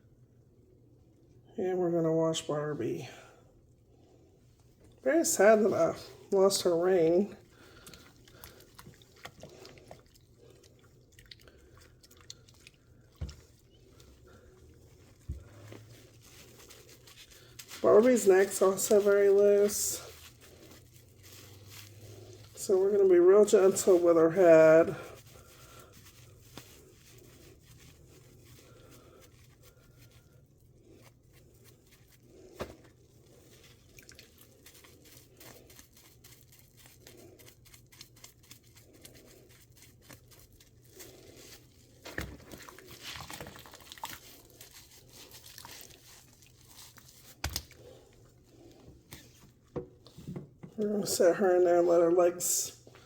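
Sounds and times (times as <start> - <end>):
water drips and splashes: 7.7 - 14.2, 33.5 - 34.8, 41.4 - 47.8.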